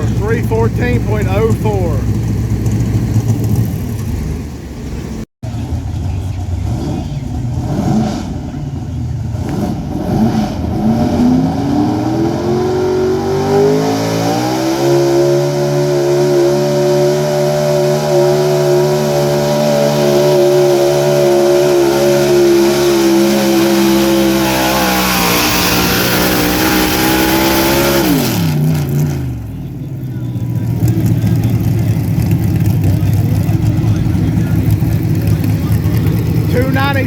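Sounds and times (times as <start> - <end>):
truck engine revving: 0.0 - 37.0.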